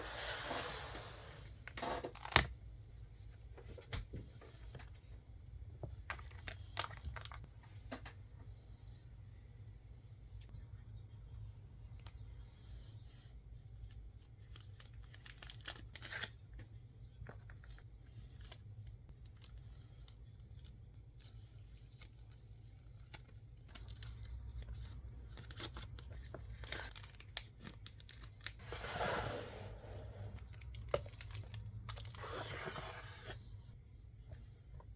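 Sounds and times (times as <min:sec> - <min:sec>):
packaging crinkling: 0:22.6 - 0:28.6, 0:30.4 - 0:32.2.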